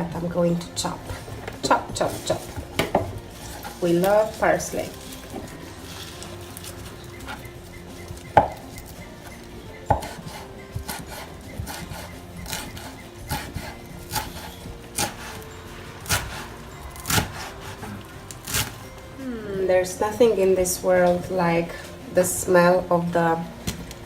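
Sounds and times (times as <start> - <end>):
knife chopping on cutting board: 9.9 - 18.8.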